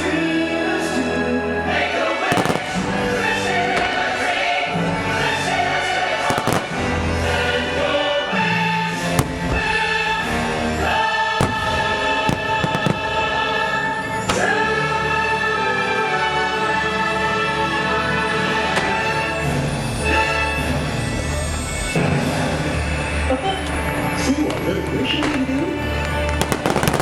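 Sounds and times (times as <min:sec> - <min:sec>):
orchestral music with choir: 0:00.0 - 0:27.0
fireworks bursts banging: 0:02.2 - 0:04.4, 0:06.2 - 0:07.4, 0:09.1 - 0:10.3, 0:11.4 - 0:13.4, 0:26.0 - 0:27.0.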